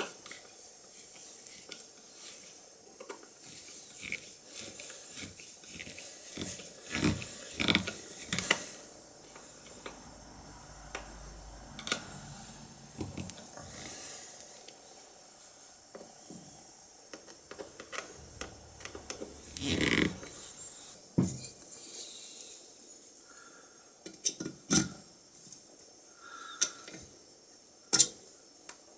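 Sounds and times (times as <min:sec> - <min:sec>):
faint low hum: 0:06.0 - 0:23.8.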